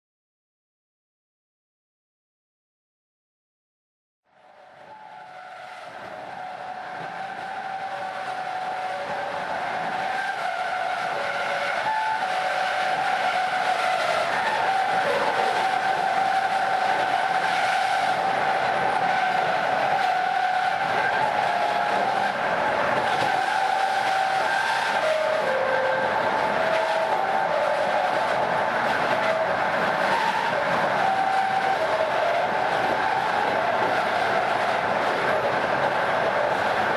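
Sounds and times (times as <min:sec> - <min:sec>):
train rumble: 0:04.3 - 0:36.9
train wheels whistling on rails: 0:04.3 - 0:36.9.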